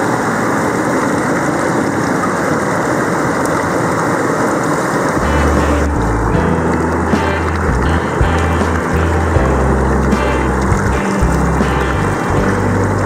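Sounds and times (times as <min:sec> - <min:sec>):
waterfall rushing: 0:00.0 - 0:13.0
low sustained music tones: 0:05.2 - 0:13.0.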